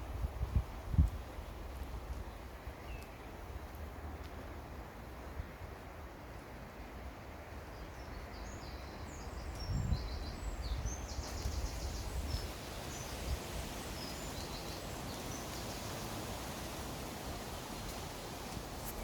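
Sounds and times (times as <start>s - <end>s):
wind and rustling leaves: 0.0s - 19.0s
songbirds chirping and trilling: 7.4s - 19.0s.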